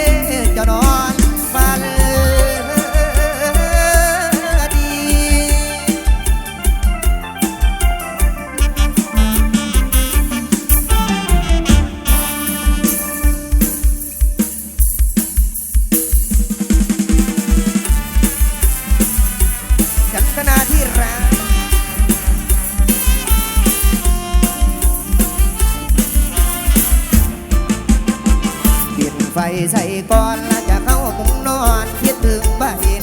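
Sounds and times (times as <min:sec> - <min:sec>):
drum kit fast beat: 0:00.0 - 0:33.0
instrumental melody: 0:00.0 - 0:33.0.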